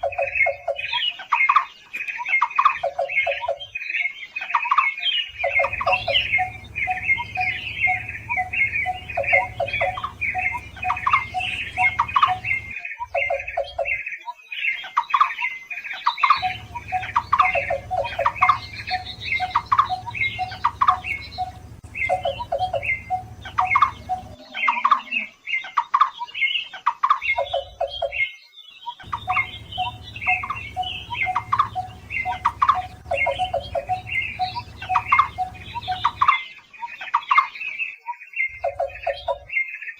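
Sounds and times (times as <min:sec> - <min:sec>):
barbets calling: 0:05.1 - 0:14.0, 0:16.0 - 0:26.6, 0:29.0 - 0:37.5
low hum: 0:05.4 - 0:12.8, 0:16.4 - 0:24.4, 0:29.0 - 0:36.3.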